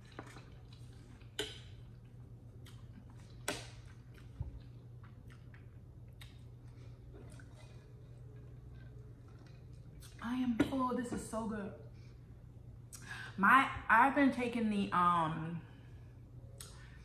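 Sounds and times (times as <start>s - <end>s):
chewing noodles: 0.0s - 10.2s
steady low hum: 0.0s - 17.0s.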